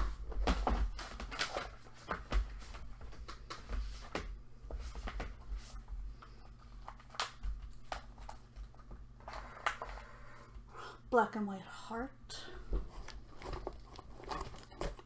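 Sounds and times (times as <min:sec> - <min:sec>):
low electrical hum: 0:00.0 - 0:15.0
hands handling craft items: 0:12.6 - 0:15.0.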